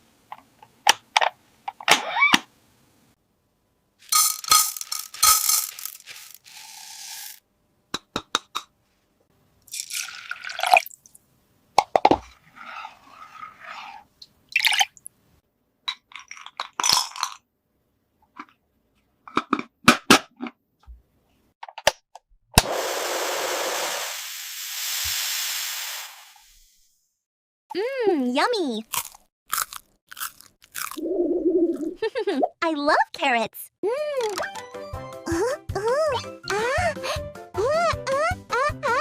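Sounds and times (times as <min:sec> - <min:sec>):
plastic toy pieces clicking: 0:04.1 - 0:07.4.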